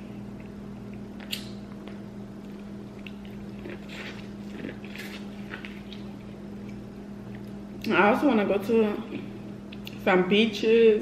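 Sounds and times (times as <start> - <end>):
steady low hum: 0.0 - 11.0
mouth smacks and clicks eating: 0.4 - 6.1.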